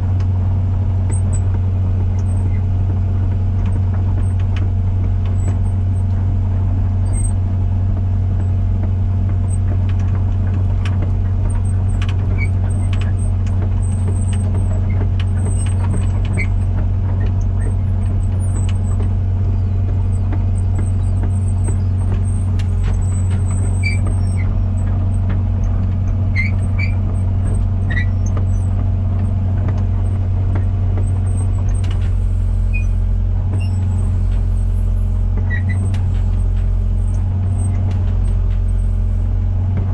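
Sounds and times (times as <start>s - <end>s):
excavator diesel engine running: 0.0s - 39.9s
machine clicks and squeaks: 2.2s - 2.7s, 7.0s - 7.5s, 9.3s - 39.0s.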